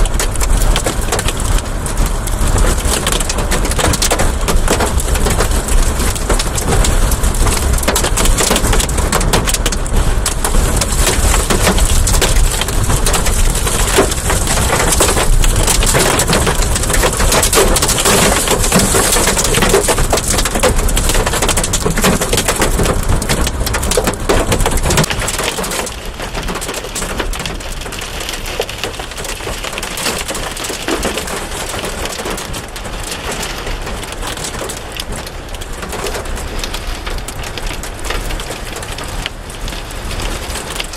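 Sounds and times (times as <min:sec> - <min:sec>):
heavy rain and hail pelting: 0:00.0 - 0:40.9.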